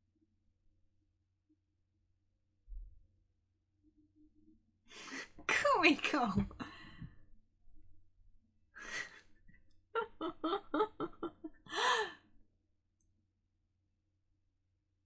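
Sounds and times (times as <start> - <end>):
woman gasping and breathing: 11.7 - 12.2.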